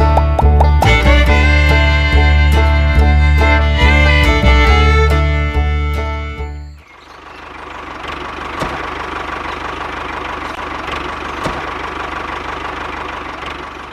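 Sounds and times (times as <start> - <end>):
music: 0.0 - 6.8.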